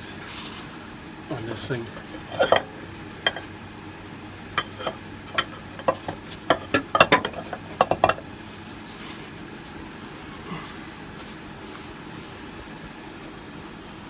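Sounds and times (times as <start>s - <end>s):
metal tools clinking and knocking: 1.6s - 3.5s, 4.3s - 8.3s.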